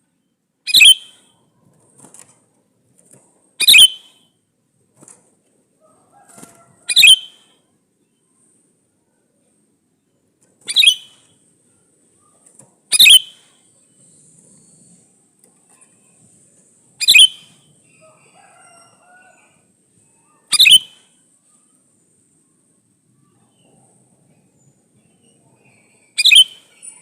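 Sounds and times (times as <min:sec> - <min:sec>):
bird calling: 0:00.7 - 0:01.3, 0:03.6 - 0:04.2, 0:06.9 - 0:07.5, 0:10.7 - 0:11.3, 0:12.9 - 0:13.5, 0:17.0 - 0:19.3, 0:20.2 - 0:21.0, 0:26.0 - 0:27.0.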